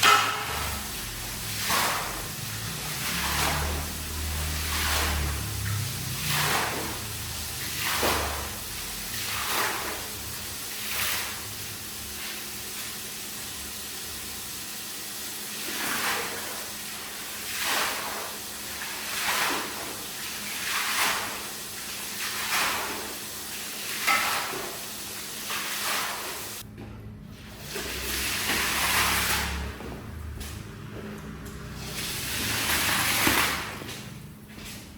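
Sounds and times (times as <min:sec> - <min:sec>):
cleaning tool swishing on wet rug: 0:01.4 - 0:07.1, 0:18.9 - 0:23.1, 0:25.5 - 0:26.6.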